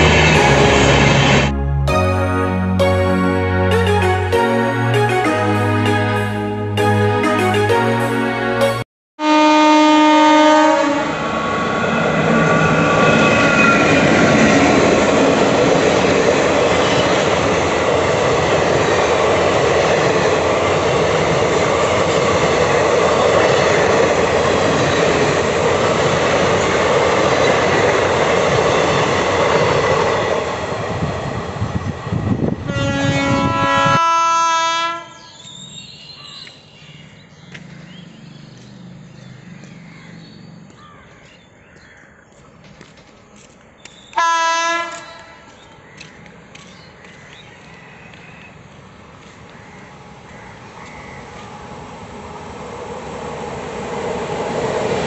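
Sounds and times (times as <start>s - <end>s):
train coaches rumbling and clattering: 0.0s - 1.6s, 11.0s - 34.1s, 42.4s - 55.0s
train horn: 0.0s - 8.6s, 9.2s - 11.2s, 32.5s - 35.3s, 44.2s - 45.5s.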